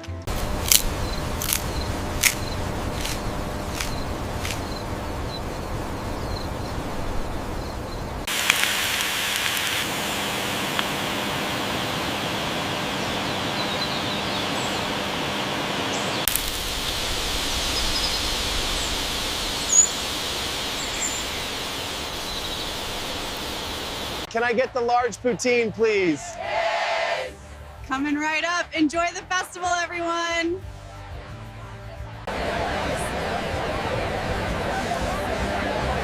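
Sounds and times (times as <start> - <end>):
outdoor ambient noise: 0.0 - 24.4, 30.5 - 36.0.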